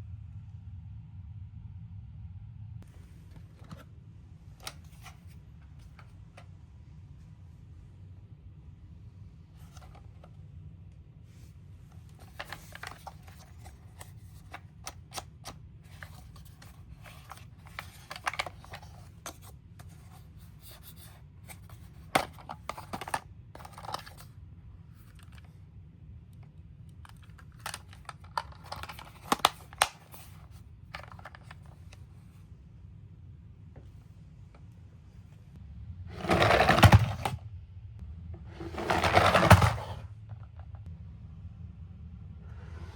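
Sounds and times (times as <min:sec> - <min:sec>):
steady low hum: 0:00.0 - 0:42.9
plastic toys clicking and scraping: 0:12.2 - 0:24.3, 0:27.1 - 0:31.8, 0:36.2 - 0:37.4, 0:38.6 - 0:40.0.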